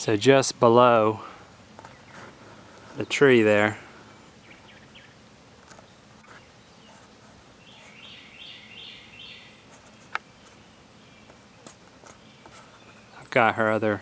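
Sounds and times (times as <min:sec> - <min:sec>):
bird singing high notes: 0:07.6 - 0:09.6.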